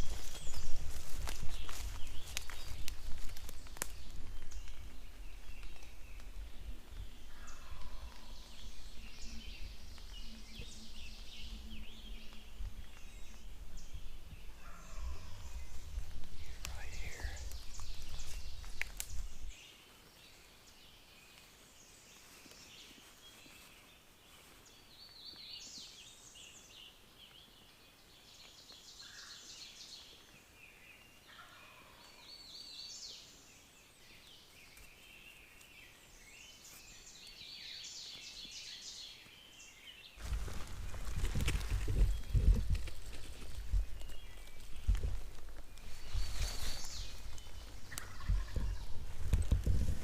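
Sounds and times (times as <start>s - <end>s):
songbirds chirping and trilling: 0.0s - 50.0s
distant turkey gobbling: 47.9s - 48.9s.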